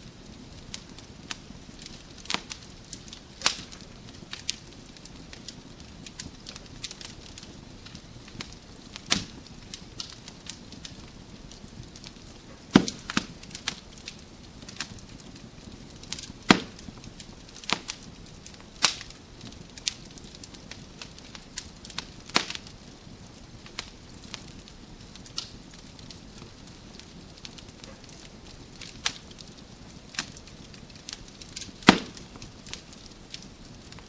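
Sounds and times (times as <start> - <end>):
low steady hiss: 0.0 - 34.0
wood fire crackling: 0.0 - 34.0.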